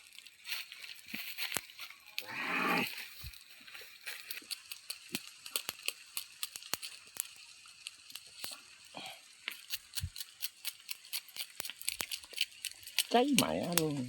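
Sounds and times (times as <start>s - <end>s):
faint hiss: 0.0s - 4.4s
campfire crackling and popping: 0.0s - 14.0s.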